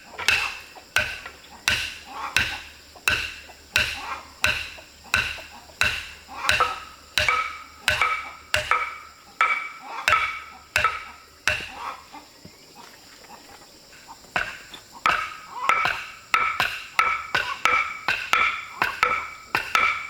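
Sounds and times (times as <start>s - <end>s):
metal tool strikes ringing: 0.2s - 11.8s.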